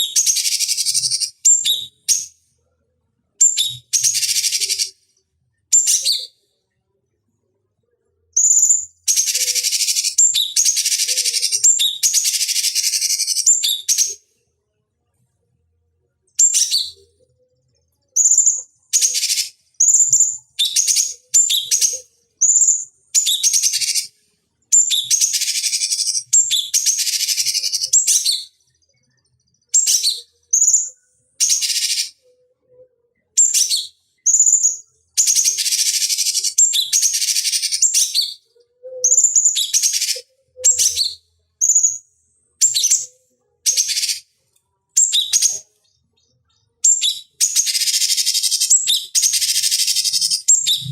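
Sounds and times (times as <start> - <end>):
bird chirping and whistling: 0.0 - 2.3, 3.4 - 4.9, 5.7 - 6.3, 8.4 - 14.2, 16.4 - 17.0, 18.2 - 24.1, 24.8 - 28.5, 29.8 - 32.1, 33.4 - 38.4, 39.0 - 42.0, 42.6 - 43.1, 43.7 - 44.2, 45.0 - 45.6, 46.8 - 50.9
bird rapid chattering: 46.9 - 50.9.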